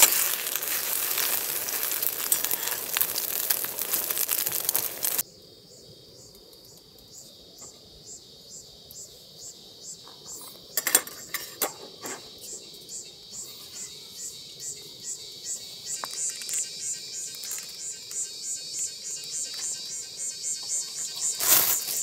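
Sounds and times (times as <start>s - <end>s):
loud crinkling noise: 0.0s - 5.2s, 16.0s - 18.2s, 21.2s - 22.0s
insects chirping: 0.0s - 22.0s.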